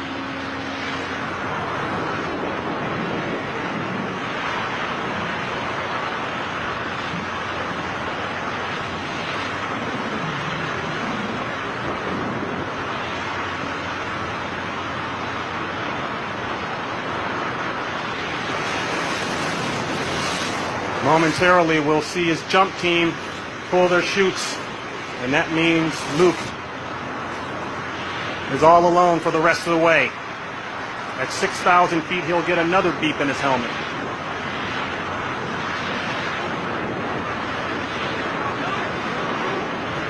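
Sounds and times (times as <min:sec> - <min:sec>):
wind rushing past microphone: 0:00.0 - 0:40.0.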